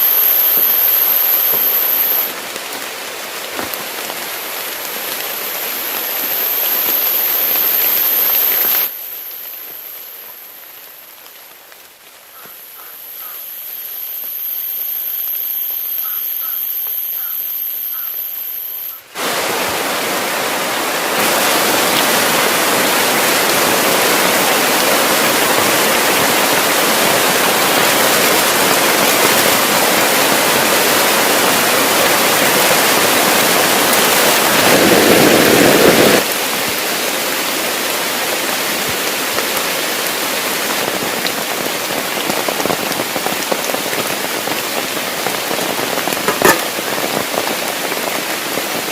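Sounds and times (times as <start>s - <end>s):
high-pitched whine: 0.0s - 2.4s, 4.0s - 19.7s
heavy rain falling: 0.0s - 48.9s.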